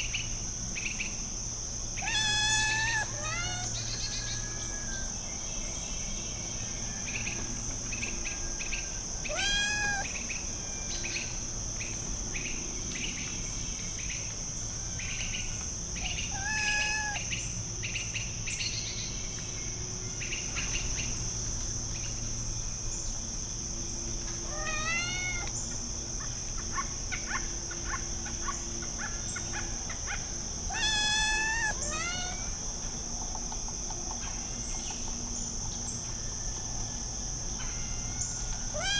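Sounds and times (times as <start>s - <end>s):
high-pitched insect chorus: 0.0s - 38.9s
kitten mewing: 2.0s - 3.7s, 9.3s - 10.1s, 16.3s - 17.2s, 24.5s - 25.5s, 30.7s - 32.5s.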